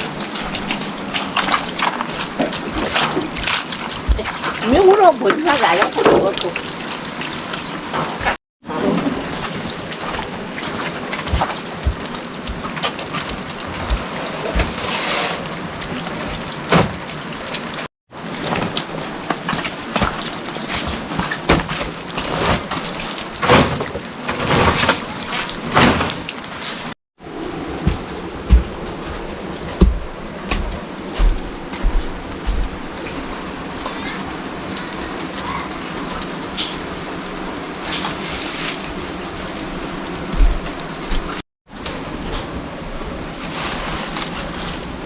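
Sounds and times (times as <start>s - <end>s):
heavy rain: 0.0s - 45.0s
heavy drips knocking: 0.5s - 8.4s, 10.0s - 17.9s.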